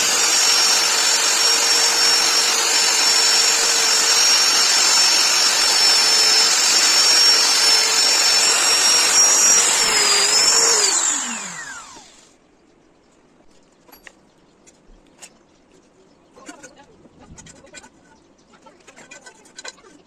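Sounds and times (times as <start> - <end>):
power tool whining and winding down: 0.0 - 12.3.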